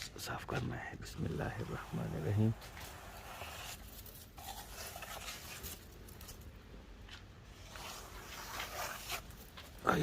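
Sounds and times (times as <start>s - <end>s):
snow brushed off a car: 1.6s - 5.9s, 7.5s - 10.0s.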